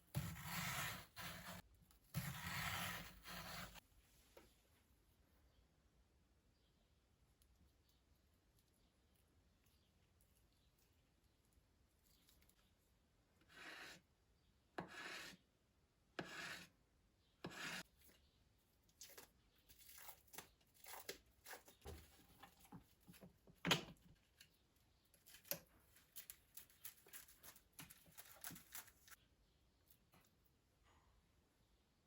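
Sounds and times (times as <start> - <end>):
rasping strokes: 0.0 - 3.8, 17.4 - 17.9.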